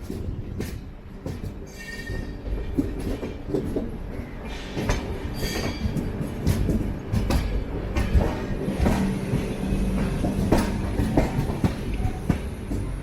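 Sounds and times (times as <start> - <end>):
train wheels knocking over rail joints: 0.0 - 13.0.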